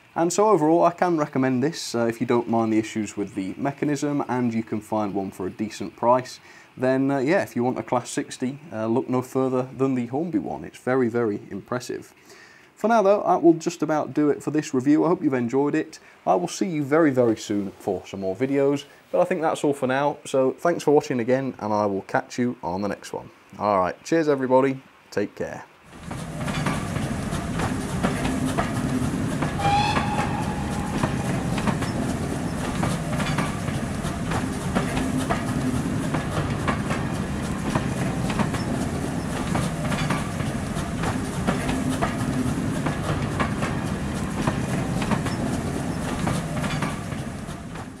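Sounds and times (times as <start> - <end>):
train rumble: 25.9 - 48.0
train wheels clicking over rails: 25.9 - 48.0
train whistle: 29.4 - 32.6.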